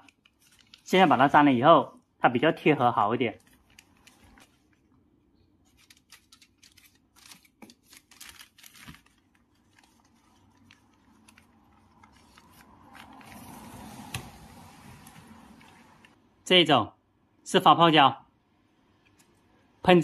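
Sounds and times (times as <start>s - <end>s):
foil tape crinkling and tearing: 3.4s - 4.8s, 5.7s - 13.4s.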